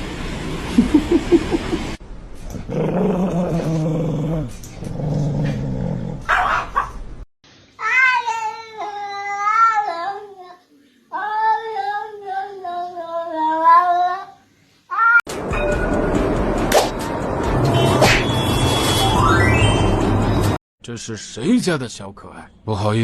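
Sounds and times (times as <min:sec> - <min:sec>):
cat yowling: 0:14.9 - 0:15.2.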